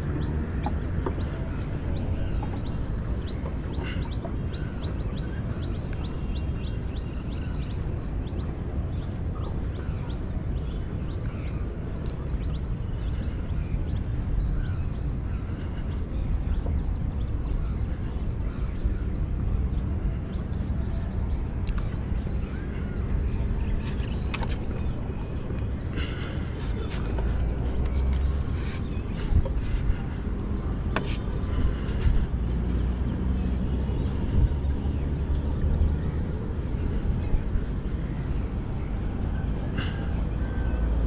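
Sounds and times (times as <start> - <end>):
birds calling: 0.0 - 41.0
steady low rumble: 0.0 - 41.0.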